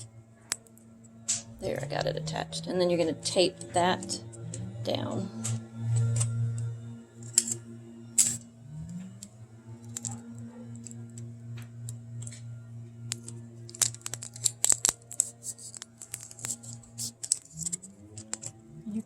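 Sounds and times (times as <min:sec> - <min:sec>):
steady low hum: 0:00.0 - 0:19.0
sticky tape pulling and tearing: 0:01.3 - 0:01.5, 0:07.2 - 0:07.6, 0:08.2 - 0:08.4, 0:13.1 - 0:18.6.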